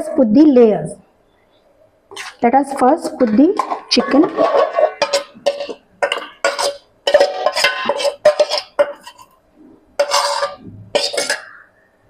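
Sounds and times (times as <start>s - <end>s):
metal utensil clanking on pot: 2.1s - 9.4s, 10.0s - 11.6s.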